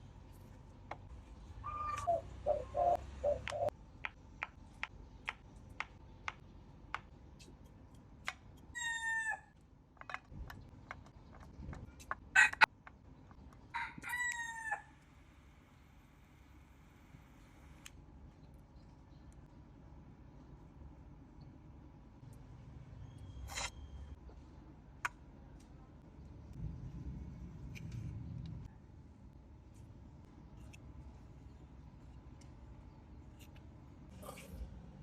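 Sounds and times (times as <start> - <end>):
clucking calls: 1.7 - 3.7
rooster crowing: 13.7 - 15.0.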